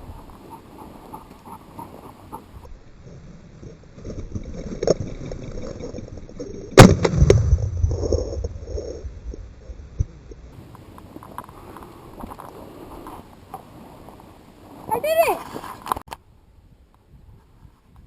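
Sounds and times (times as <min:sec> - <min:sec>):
shotgun shot: 0:06.8 - 0:07.8.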